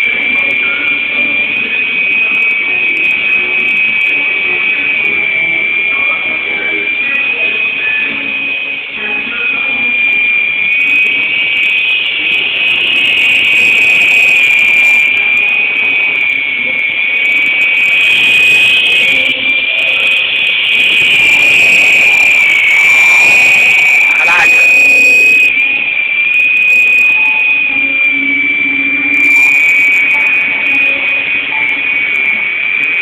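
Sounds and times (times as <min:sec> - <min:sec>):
toy helicopter motor whine: 0:09.2 - 0:33.0.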